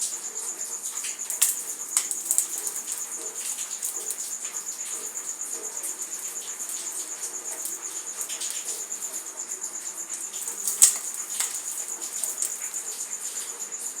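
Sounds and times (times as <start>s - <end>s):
dry material crumbling: 1.2s - 4.4s, 7.5s - 9.2s, 10.4s - 12.8s.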